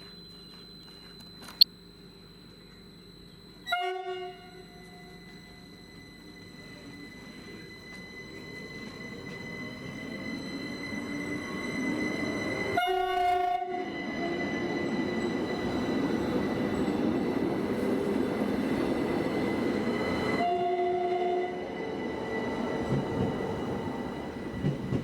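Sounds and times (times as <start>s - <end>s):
steady high whine: 0.0s - 12.8s
train horn: 3.7s - 5.3s, 12.7s - 14.4s, 20.4s - 21.8s
train rumble: 4.8s - 25.0s.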